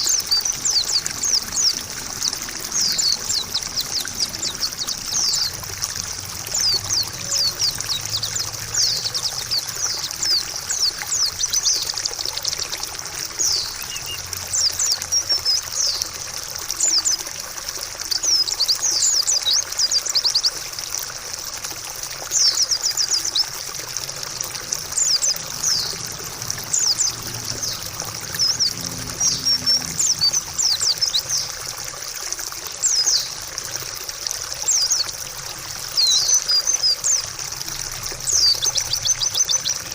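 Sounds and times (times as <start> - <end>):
bird twittering: 0.0 - 5.6, 6.5 - 12.6, 13.4 - 16.0, 24.8 - 31.5, 35.9 - 37.3, 38.2 - 39.9
water trickling: 0.0 - 39.9.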